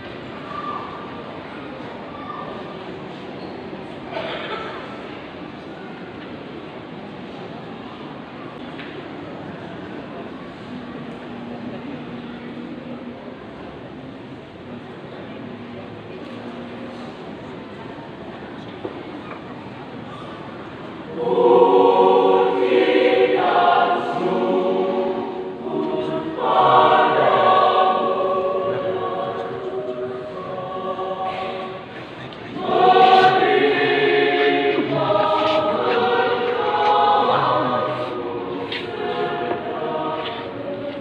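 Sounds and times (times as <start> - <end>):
church choir singing: 21.1 - 41.0.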